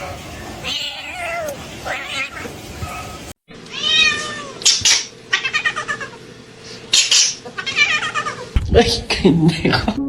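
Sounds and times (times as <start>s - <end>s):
cat meowing: 0.6s - 4.7s, 5.3s - 6.2s, 7.6s - 8.5s.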